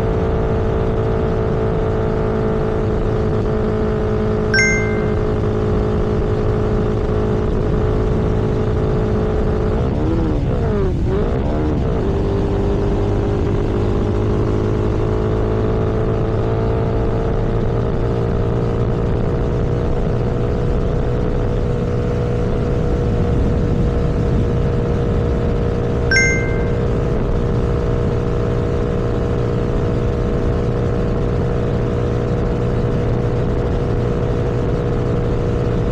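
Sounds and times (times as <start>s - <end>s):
short high beep: 4.6s - 5.5s, 26.1s - 27.0s.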